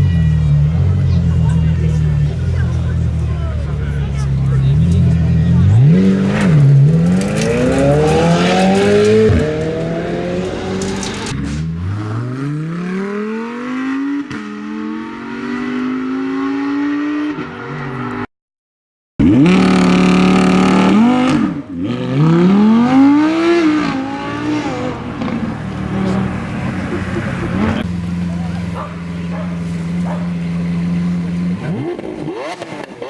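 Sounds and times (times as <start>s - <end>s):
car engine revving: 0.0s - 18.2s, 19.2s - 33.0s
car engines accelerating hard: 0.0s - 18.3s, 19.2s - 33.0s.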